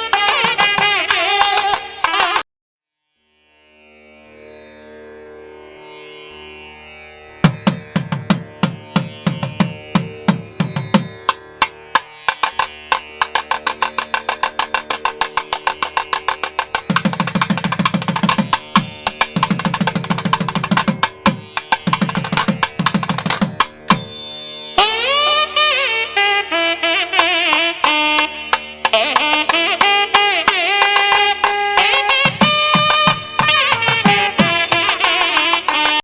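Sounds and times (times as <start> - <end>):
fast hand drum strokes: 0.0 - 2.4, 7.5 - 24.1, 28.2 - 36.0.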